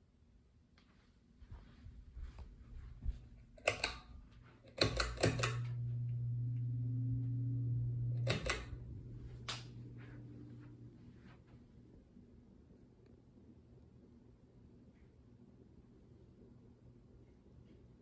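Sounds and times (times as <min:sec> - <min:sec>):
steady electrical hum: 0:02.3 - 0:14.8
fan switch clicks: 0:03.6 - 0:04.1, 0:04.7 - 0:10.8.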